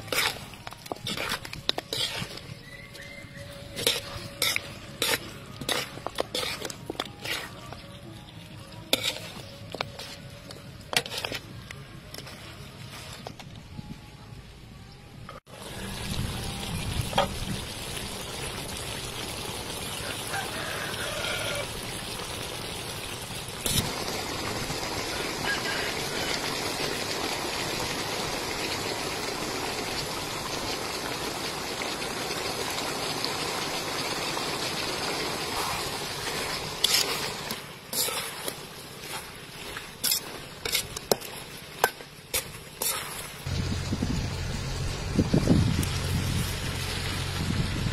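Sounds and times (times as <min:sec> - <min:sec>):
metal spatula scraping pan: 0:00.0 - 0:08.0, 0:08.6 - 0:13.3, 0:35.6 - 0:43.4
chicken and onions sizzling: 0:00.0 - 0:13.3, 0:15.5 - 0:47.9.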